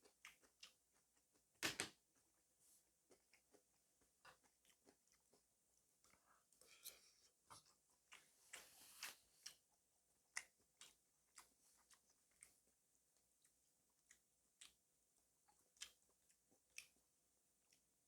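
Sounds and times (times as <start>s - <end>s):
wet chewing mouth clicks: 0.0s - 1.4s, 3.1s - 12.6s, 13.4s - 14.8s, 15.4s - 17.0s.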